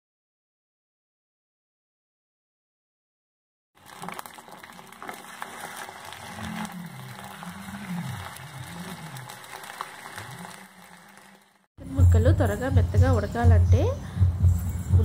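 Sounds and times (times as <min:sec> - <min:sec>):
chicken sizzling in hot oil: 0:03.8 - 0:11.7.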